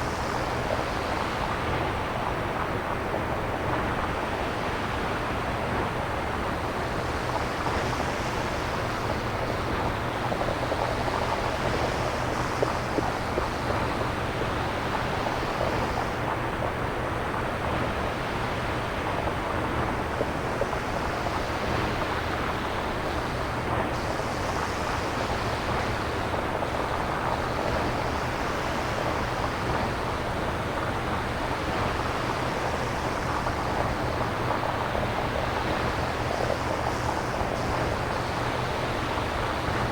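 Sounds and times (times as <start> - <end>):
synthesized surf-like noise: 17.4 - 39.9.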